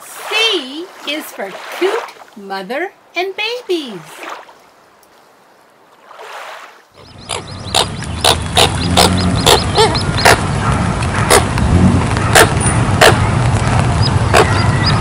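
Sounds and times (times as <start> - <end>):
coots calling: 6.9 - 13.4, 14.0 - 15.0
steady low rumble: 7.0 - 15.0.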